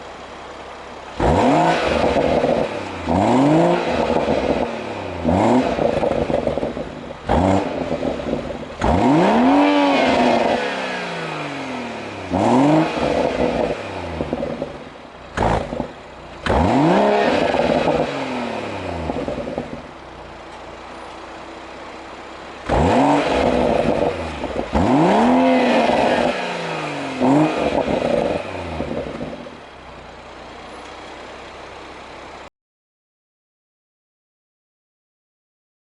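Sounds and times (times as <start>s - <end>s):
car engine revving: 1.1s - 29.8s.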